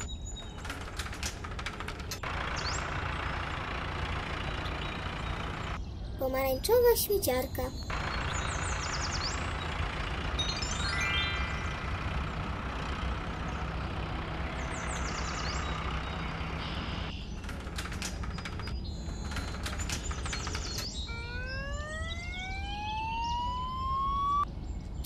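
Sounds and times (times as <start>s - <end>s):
roller garage door rattling: 0.0s - 5.8s, 7.9s - 21.1s
truck engine running: 0.0s - 24.5s
siren winding up: 20.6s - 24.5s.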